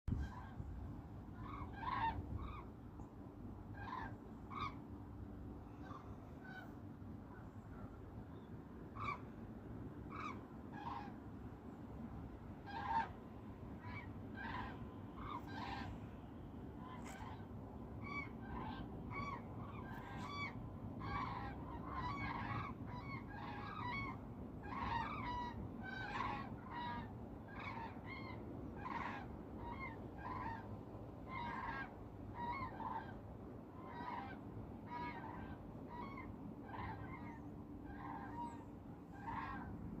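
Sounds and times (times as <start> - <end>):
steady low rumble: 0.1 - 40.0
geese honking: 1.4 - 2.6, 3.8 - 4.8, 12.6 - 13.2, 13.8 - 16.0, 18.0 - 30.6, 33.9 - 39.8.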